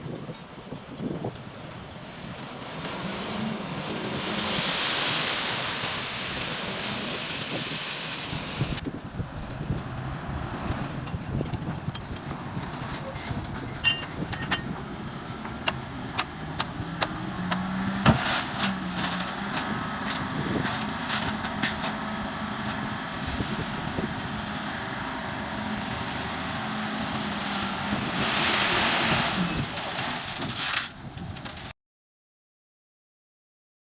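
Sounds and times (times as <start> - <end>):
diesel engine running: 8.4 - 30.5
rushing noise: 26.9 - 30.6.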